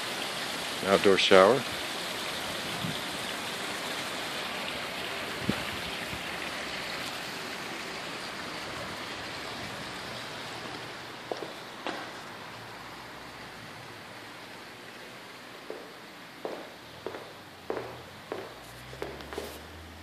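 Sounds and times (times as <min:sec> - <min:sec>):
water splashing from fountains: 0:00.0 - 0:20.0
faint knocks: 0:15.6 - 0:19.5.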